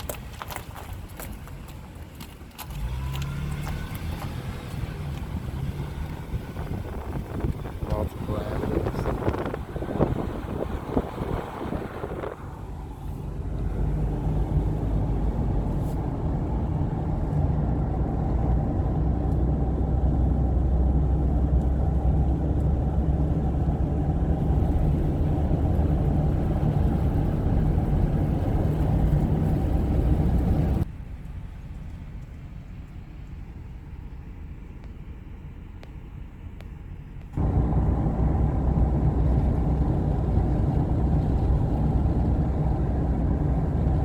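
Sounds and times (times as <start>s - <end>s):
motor vehicle running: 0.0s - 36.0s, 36.7s - 44.0s.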